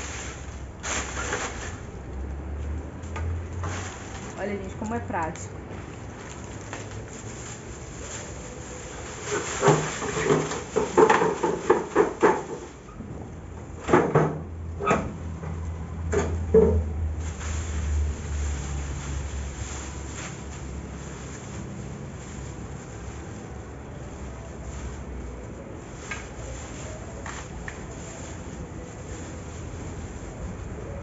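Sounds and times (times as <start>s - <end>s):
broom sweeping leaves: 0.0s - 2.7s, 3.3s - 5.3s, 6.2s - 12.8s, 17.0s - 31.0s
tin dustpan knocks and scrapes: 9.2s - 12.8s.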